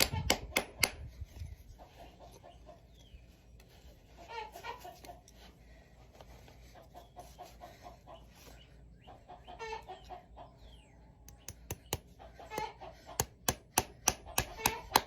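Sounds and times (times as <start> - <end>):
chickens clucking: 1.6 - 3.2, 4.0 - 5.6, 6.5 - 13.4.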